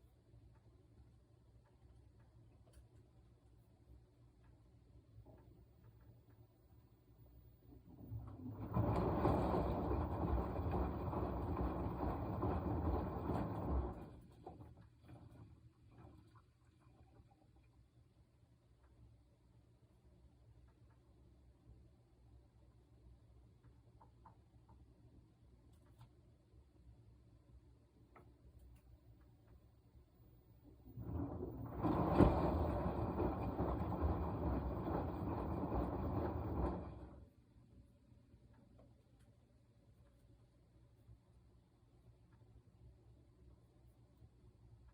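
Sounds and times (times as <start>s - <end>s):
washing machine drum churning: 7.7s - 17.3s, 30.6s - 37.3s.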